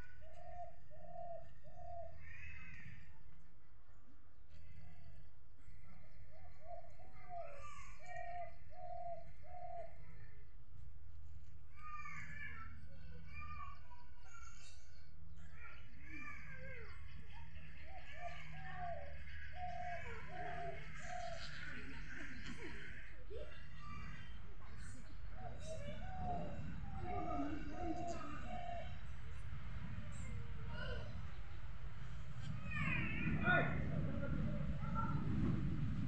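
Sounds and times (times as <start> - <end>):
dove-like cooing: 0.0 - 2.9, 5.9 - 10.2, 17.7 - 31.4, 32.5 - 36.0
small birds chirping: 12.0 - 36.0
steady low rumble: 17.0 - 36.0.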